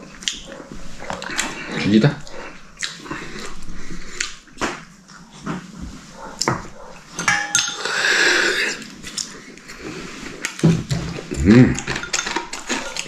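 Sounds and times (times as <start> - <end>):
dishes and cutlery clinking: 6.4 - 8.8, 10.6 - 13.0.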